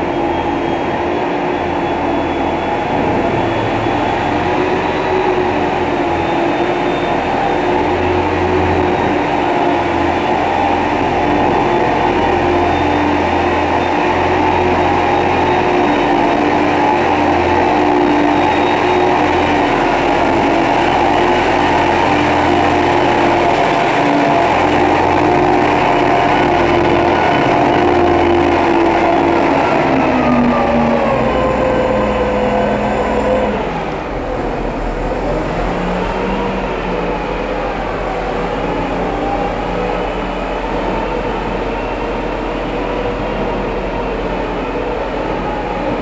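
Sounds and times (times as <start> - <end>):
road noise: 0.0 - 46.0
truck diesel engine running: 0.0 - 46.0.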